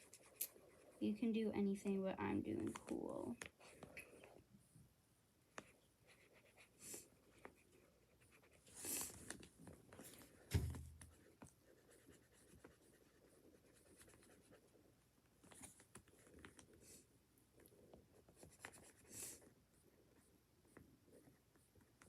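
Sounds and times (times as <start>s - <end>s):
pen scratching on paper: 5.6s - 9.2s, 10.2s - 14.7s, 18.2s - 19.5s
dull thump: 10.5s - 11.1s.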